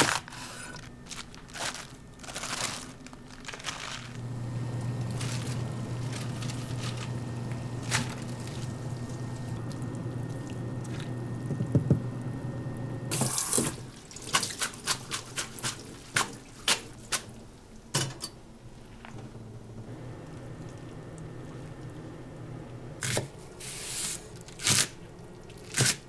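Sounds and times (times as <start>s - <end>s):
steady low hum: 0.0s - 13.1s
tap water running: 3.8s - 26.0s
kitchenware clinking: 18.0s - 18.4s.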